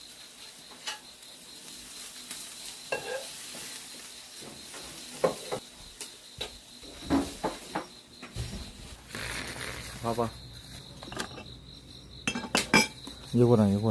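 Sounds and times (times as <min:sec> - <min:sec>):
food sizzling on a grill: 0:00.0 - 0:10.8.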